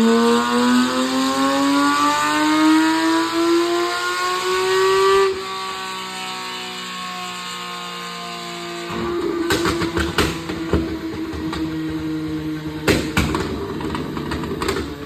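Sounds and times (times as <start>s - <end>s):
car engine running: 8.8s - 15.0s
exhaust pops and bangs: 8.9s - 15.0s.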